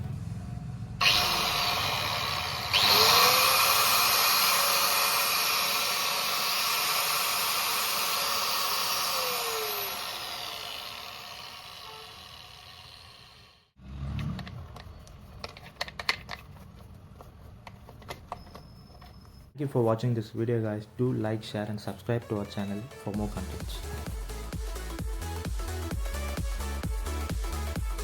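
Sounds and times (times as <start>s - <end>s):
angle grinder running: 1.0s - 13.8s.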